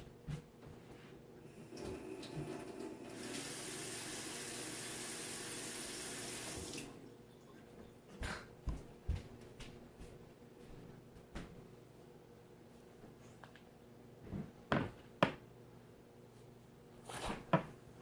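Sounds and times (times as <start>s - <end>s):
water running from tap: 1.5s - 7.1s.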